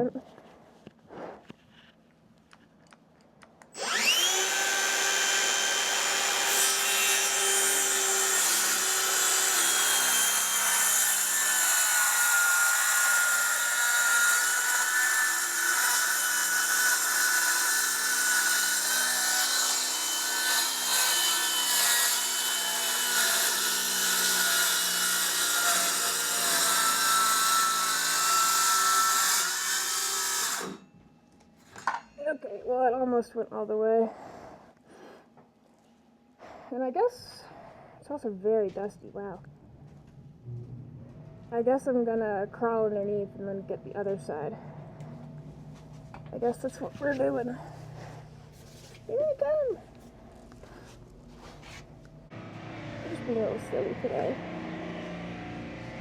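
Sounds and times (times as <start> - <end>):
circular saw cutting plywood: 3.8 - 30.8.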